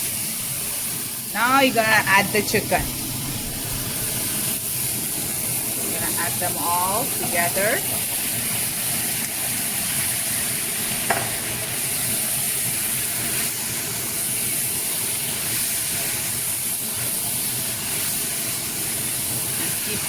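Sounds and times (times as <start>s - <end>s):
chicken sizzling in a pan: 0.0s - 20.0s.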